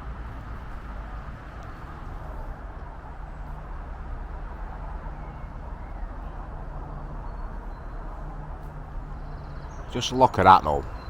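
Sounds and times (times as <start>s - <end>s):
faint bird chirps: 4.9s - 11.0s.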